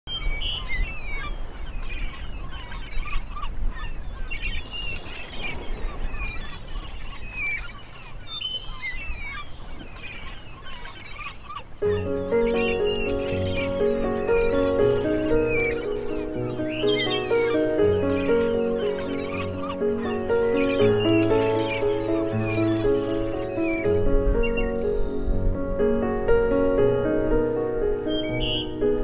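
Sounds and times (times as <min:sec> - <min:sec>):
birds chirping and crying: 0:00.1 - 0:29.0
music: 0:11.8 - 0:29.0.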